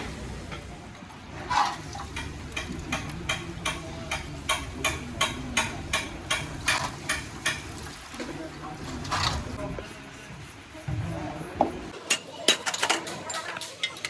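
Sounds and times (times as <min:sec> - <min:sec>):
sharp metallic tapping: 0:02.1 - 0:07.7.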